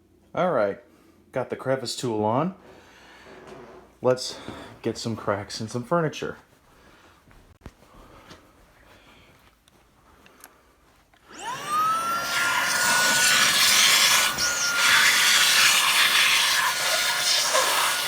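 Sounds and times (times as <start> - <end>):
vacuum cleaner motor whining: 11.3 - 18.0.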